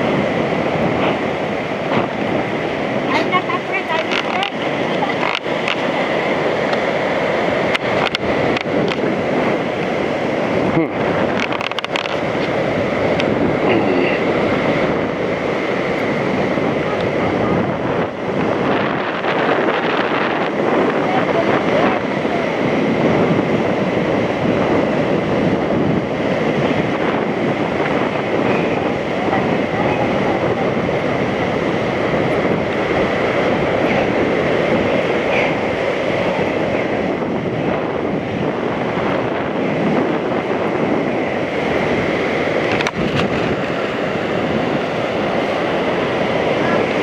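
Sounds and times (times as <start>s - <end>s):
pulleys rolling along steel cable: 0.0s - 10.1s
wind on microphone: 0.0s - 47.0s.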